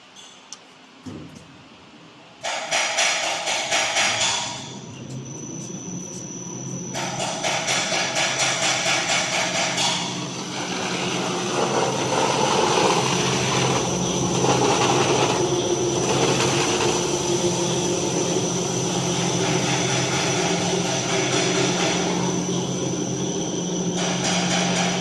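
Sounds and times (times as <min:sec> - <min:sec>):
high whine: 0:03.9 - 0:25.0
sanding machine drone: 0:05.1 - 0:25.0.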